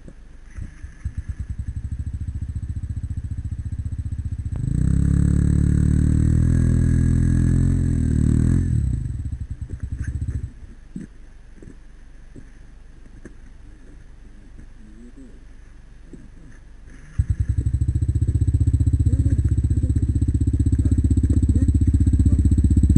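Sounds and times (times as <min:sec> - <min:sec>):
motorcycle engine idling and revving: 0:00.6 - 0:11.1, 0:17.1 - 0:22.9.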